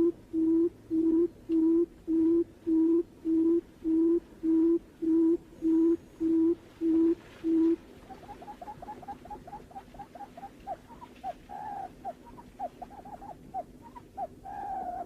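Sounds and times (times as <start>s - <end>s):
bird booming hoots: 10.7s - 15.0s.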